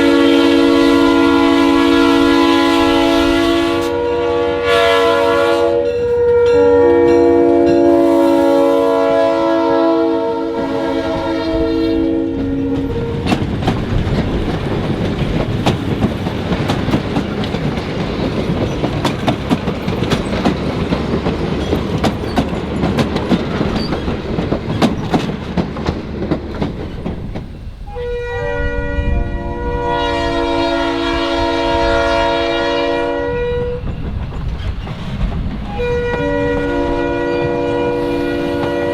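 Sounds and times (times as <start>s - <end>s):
diesel locomotive horn: 0.0s - 13.7s, 27.8s - 34.0s, 35.7s - 38.9s
wheels clicking over rail joints: 12.4s - 27.8s, 33.8s - 36.2s.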